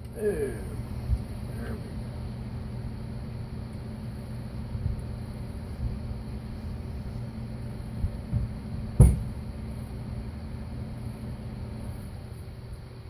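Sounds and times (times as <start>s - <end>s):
steady low hum: 0.0s - 13.0s
metal bar knocks and thumps: 8.3s - 9.3s.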